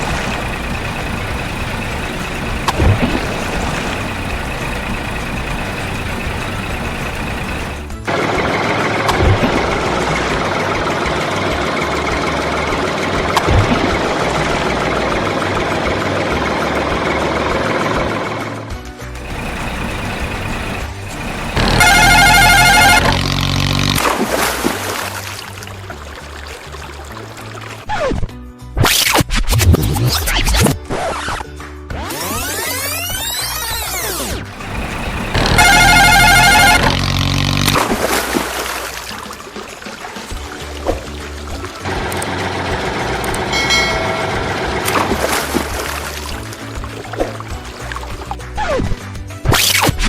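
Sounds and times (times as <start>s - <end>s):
truck engine running: 0.0s - 26.1s, 32.4s - 48.6s
loud pitched tone: 19.2s - 24.0s, 34.6s - 37.8s.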